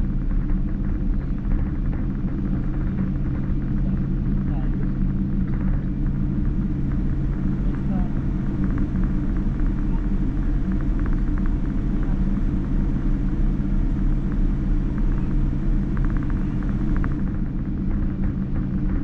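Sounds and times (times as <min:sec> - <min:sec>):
airliner cabin engine rumble: 0:00.0 - 0:19.0.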